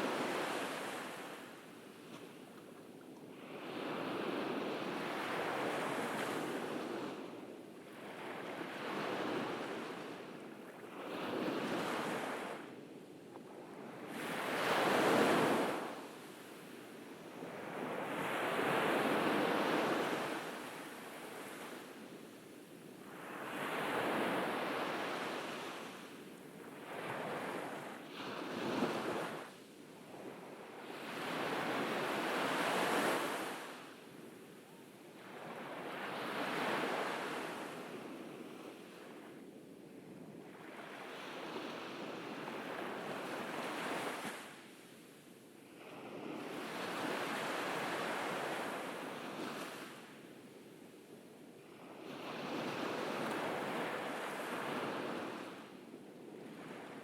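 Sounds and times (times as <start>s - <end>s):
ocean waves breaking on beach: 0.0s - 2.6s, 3.2s - 12.8s, 13.6s - 39.5s, 40.4s - 57.0s.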